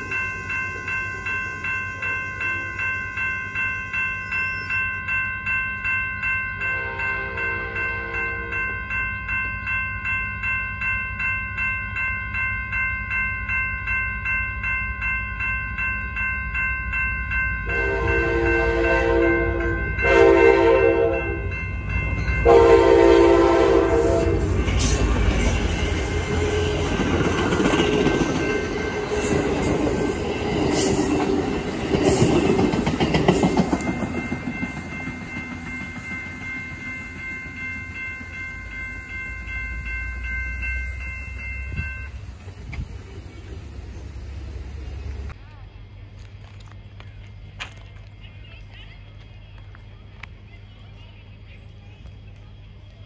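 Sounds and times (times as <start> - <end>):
crossing bell ringing: 0.0 - 45.4
train rumbling past: 0.0 - 53.0
train horn blasts: 6.7 - 8.7, 17.6 - 21.5, 22.4 - 24.9, 25.6 - 27.1.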